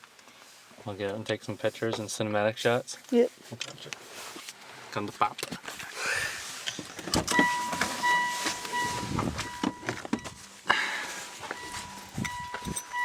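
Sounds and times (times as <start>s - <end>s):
high steady car beep: 7.2s - 13.0s.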